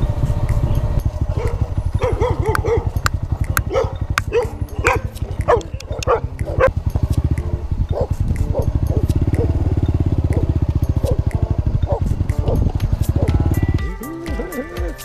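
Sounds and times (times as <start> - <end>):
steady low rumble: 0.0 - 14.0
dog barking: 1.3 - 6.8, 7.9 - 9.7, 10.3 - 13.4.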